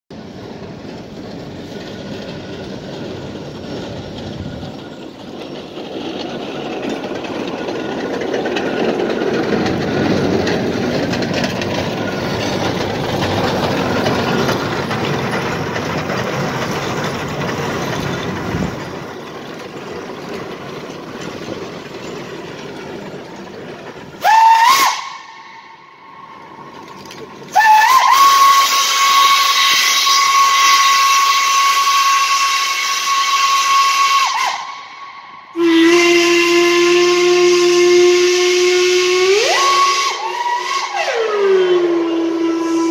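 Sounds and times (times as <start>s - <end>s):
rushing hissing steam: 0.2s - 42.9s
steam locomotive whistle: 24.2s - 26.6s, 27.5s - 42.9s.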